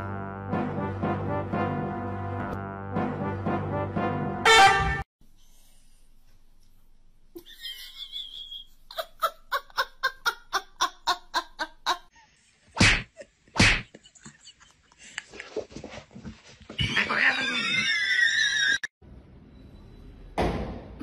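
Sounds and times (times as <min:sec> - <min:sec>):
person laughing: 0:07.4 - 0:12.1.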